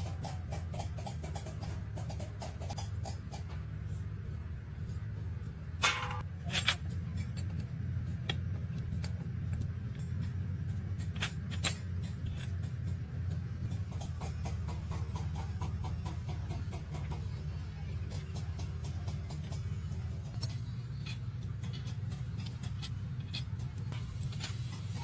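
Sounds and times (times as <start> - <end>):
steady low hum: 0.0 - 25.0
metal tool clicks and knocks: 5.8 - 17.4, 18.1 - 24.6.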